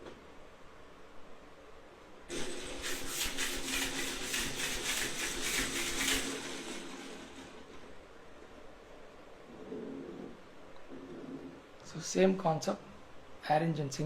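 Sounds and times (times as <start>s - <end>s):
air engine hissing and puffing: 2.3s - 8.1s.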